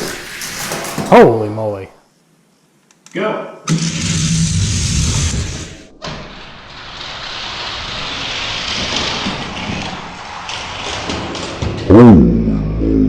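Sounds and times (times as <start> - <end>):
toy cars rolling down plastic track: 0.0 - 1.4, 6.3 - 11.9.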